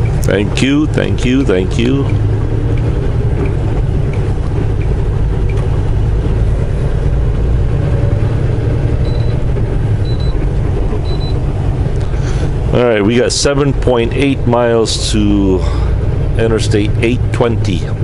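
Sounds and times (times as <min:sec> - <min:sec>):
truck diesel engine and road noise: 0:00.0 - 0:18.0
short high beeps: 0:09.0 - 0:09.4.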